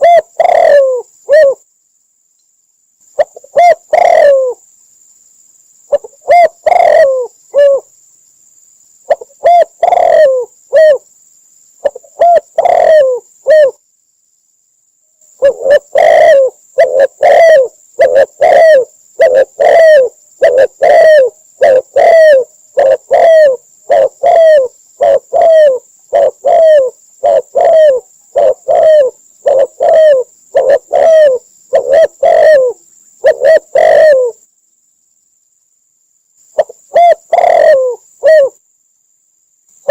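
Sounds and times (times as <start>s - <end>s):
dove cooing: 0.0s - 1.6s, 3.2s - 4.6s, 5.9s - 7.9s, 9.1s - 11.0s, 11.8s - 13.8s, 15.4s - 34.4s, 36.6s - 38.6s.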